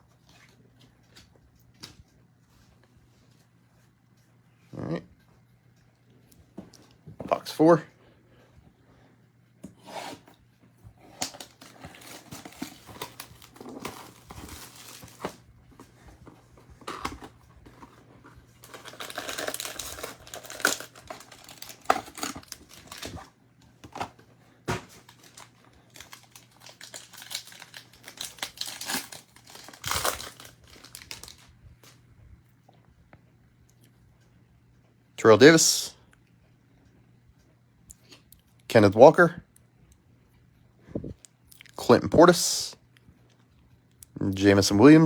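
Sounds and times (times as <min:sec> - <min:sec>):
plastic tearing: 0:11.0 - 0:15.4, 0:16.6 - 0:31.5
plastic wrapping crinkling: 0:11.1 - 0:32.0.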